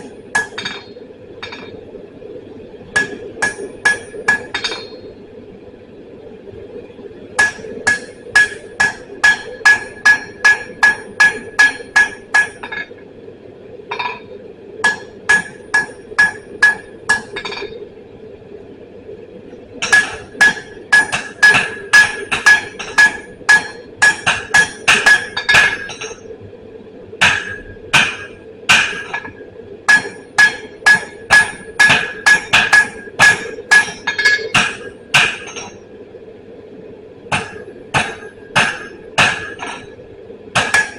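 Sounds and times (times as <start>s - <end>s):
hammer striking steel on anvil: 0.0s - 1.7s, 3.0s - 5.0s, 7.4s - 12.9s, 14.8s - 17.8s, 19.8s - 26.2s, 27.2s - 35.8s, 37.3s - 39.9s, 40.6s - 40.9s.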